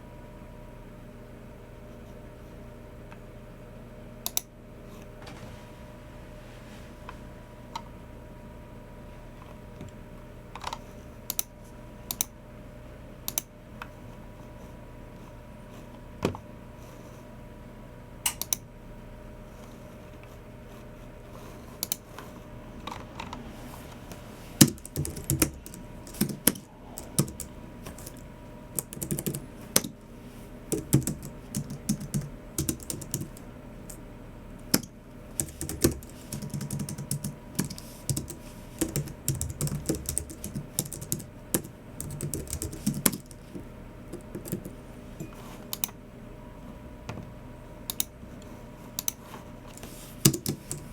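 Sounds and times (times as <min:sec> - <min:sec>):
keyboard typing: 0:24.6 - 0:30.0, 0:30.7 - 0:34.0, 0:34.6 - 0:44.8, 0:50.2 - 0:50.9.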